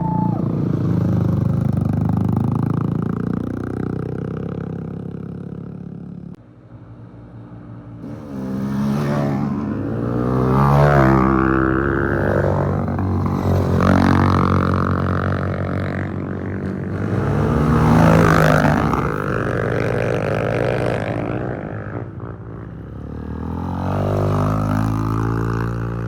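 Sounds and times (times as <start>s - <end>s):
trail motorcycles revving past: 0.0s - 26.0s.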